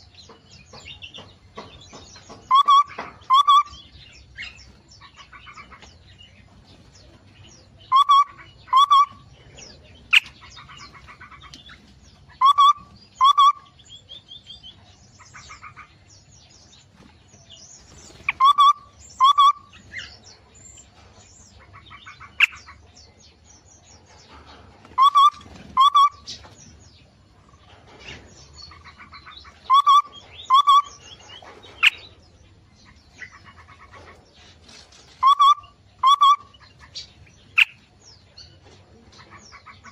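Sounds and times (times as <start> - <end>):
birds twittering: 0.0 - 39.9.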